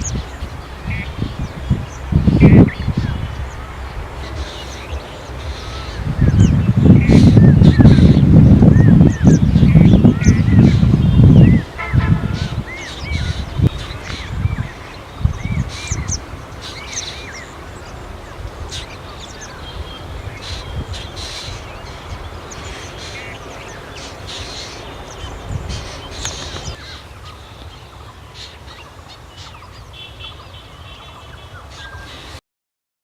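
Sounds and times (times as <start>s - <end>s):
steady low rumble: 0.0s - 16.6s
birds chirping: 0.0s - 32.4s.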